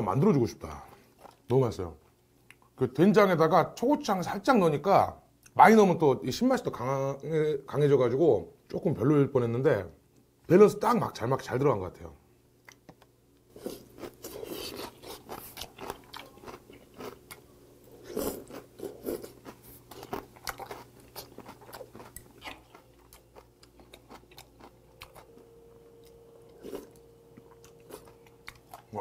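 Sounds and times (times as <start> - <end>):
chewing and crunching food: 0.7 - 2.8, 12.6 - 29.0.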